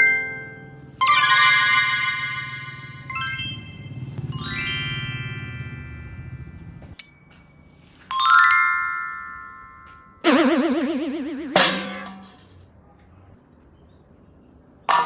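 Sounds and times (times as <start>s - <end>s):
short ping: 10.3s - 12.5s
warbling wobbling tone: 10.3s - 12.5s.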